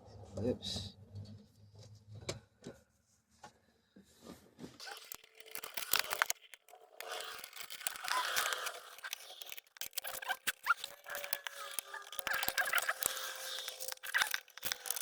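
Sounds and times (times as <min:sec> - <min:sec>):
scraping and rustling of plastic: 0:04.2 - 0:15.0.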